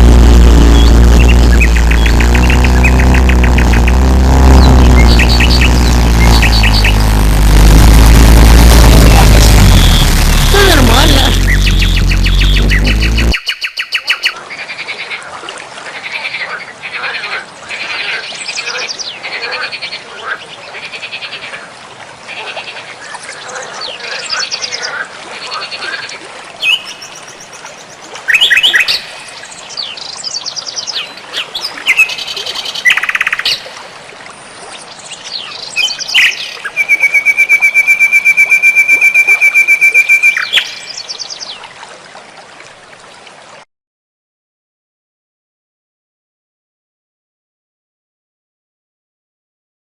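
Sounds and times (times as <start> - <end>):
bird rapid trill: 0.7 - 7.1, 35.8 - 41.0.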